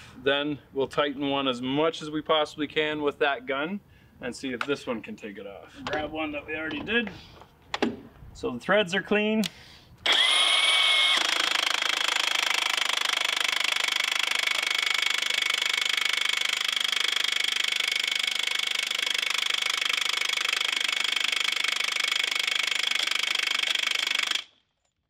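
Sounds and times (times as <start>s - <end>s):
impact wrench hammering: 11.1s - 24.5s.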